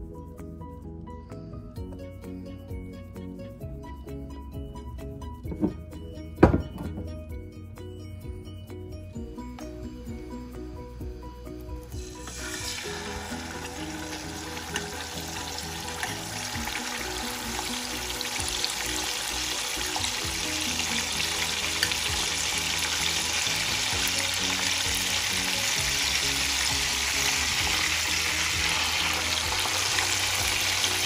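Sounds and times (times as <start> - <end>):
background music: 0.0 - 31.0
food sizzling in hot oil: 12.0 - 31.0.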